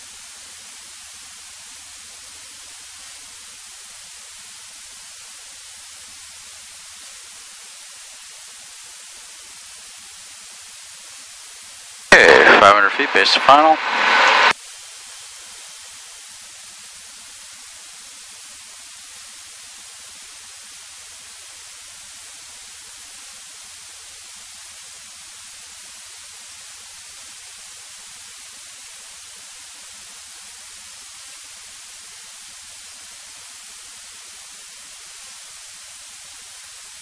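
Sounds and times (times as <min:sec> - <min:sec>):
intercom electronic hiss: 0:12.1 - 0:14.5.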